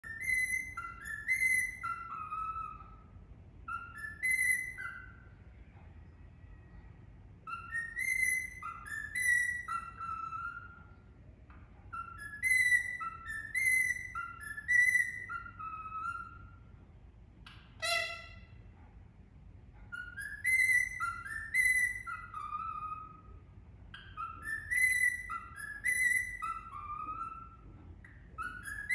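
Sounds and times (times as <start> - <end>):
parakeet whistling a tune: 0.0 - 5.4, 7.4 - 11.1, 11.9 - 16.7, 17.5 - 18.6, 19.8 - 28.9
harsh parakeet call: 3.7 - 5.3, 17.5 - 18.6, 19.9 - 27.7.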